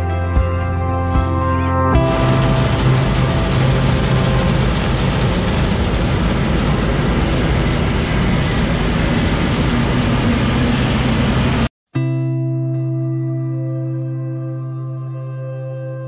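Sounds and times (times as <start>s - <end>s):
heavy farm machinery running: 2.0s - 11.7s.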